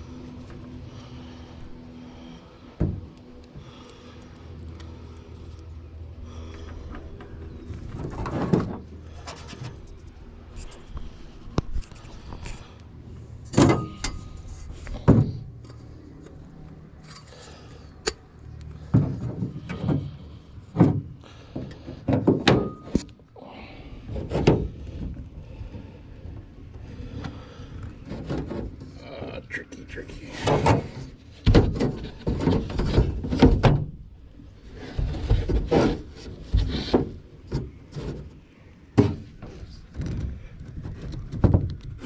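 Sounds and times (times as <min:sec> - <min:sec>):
metallic clanks and knocks: 0:13.5 - 0:14.4.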